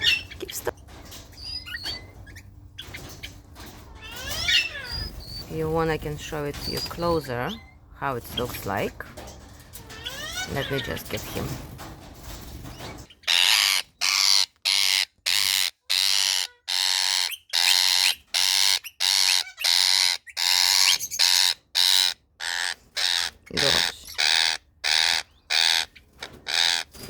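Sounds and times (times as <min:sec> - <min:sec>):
parakeet screeching: 0:04.0 - 0:05.4, 0:09.9 - 0:11.0, 0:13.2 - 0:26.9.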